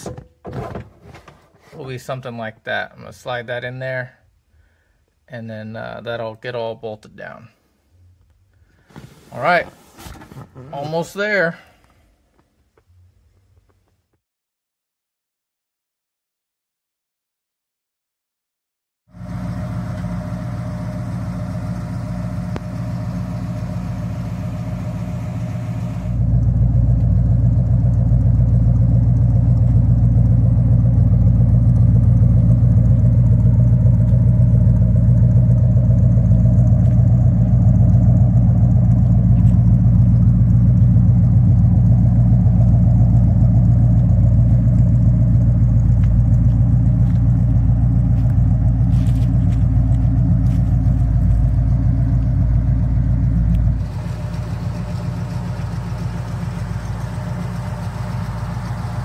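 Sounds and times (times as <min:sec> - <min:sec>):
car engine idling: 0:19.2 - 0:59.0.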